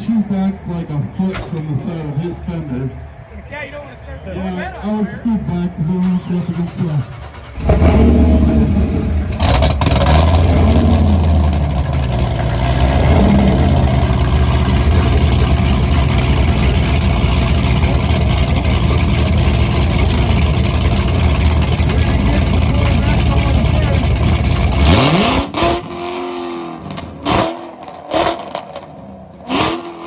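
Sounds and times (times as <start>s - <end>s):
car engine revving hard: 7.4s - 30.0s.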